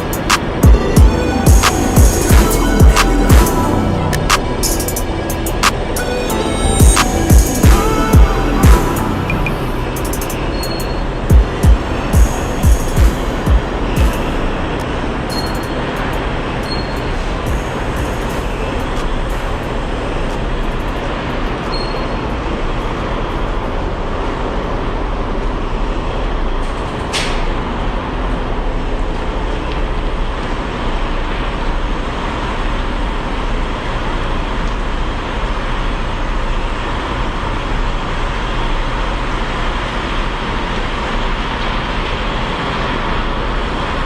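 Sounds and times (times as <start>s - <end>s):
diesel truck engine running: 0.0s - 26.6s.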